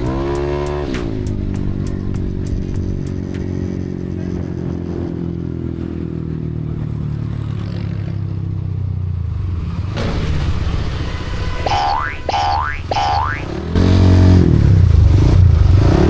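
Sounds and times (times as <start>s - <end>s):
rush of noise: 9.5s - 15.9s.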